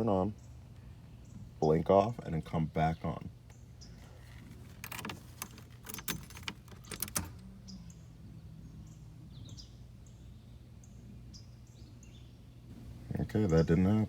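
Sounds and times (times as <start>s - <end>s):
birds chirping: 0.0s - 14.0s
low steady car hum: 0.0s - 14.0s
car keys jangling in ignition: 4.2s - 7.4s.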